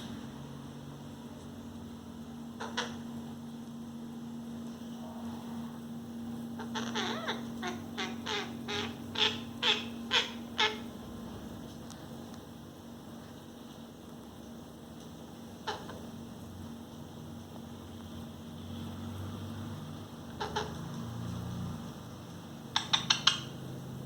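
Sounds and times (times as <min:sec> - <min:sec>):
parrot squawking: 0:02.6 - 0:03.0, 0:06.6 - 0:11.0, 0:15.6 - 0:16.1, 0:20.3 - 0:21.0, 0:22.7 - 0:23.6.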